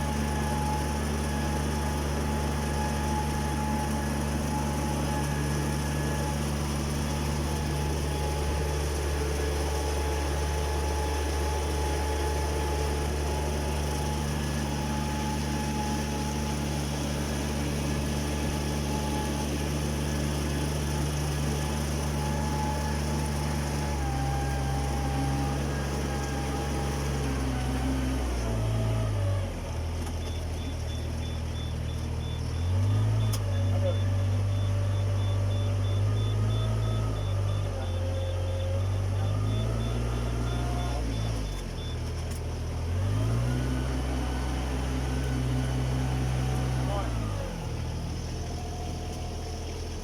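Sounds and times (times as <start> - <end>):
engine running steadily: 0.0 - 50.0.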